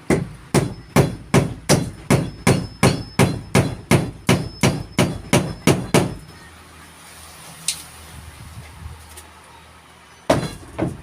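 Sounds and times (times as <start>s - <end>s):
hammer striking: 0.1s - 6.2s.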